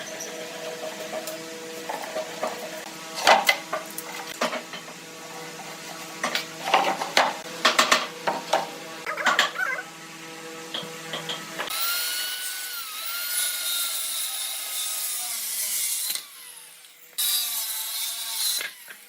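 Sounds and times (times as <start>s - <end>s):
tools and wood clattering: 5.7s - 9.6s.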